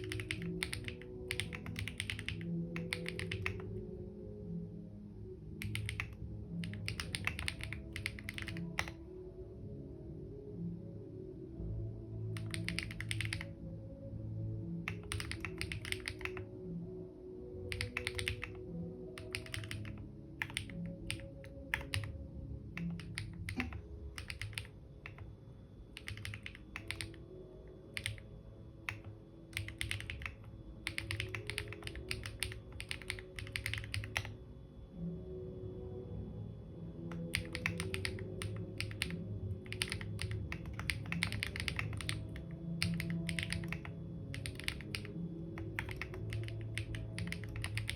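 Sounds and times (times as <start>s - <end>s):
typing on computer keyboard: 0.0s - 3.8s, 5.6s - 9.0s, 12.4s - 13.6s, 14.9s - 16.5s, 17.7s - 18.6s, 19.2s - 22.2s, 22.8s - 25.3s, 25.9s - 27.2s, 27.9s - 34.4s, 37.1s - 47.9s
soft background music: 0.0s - 47.9s.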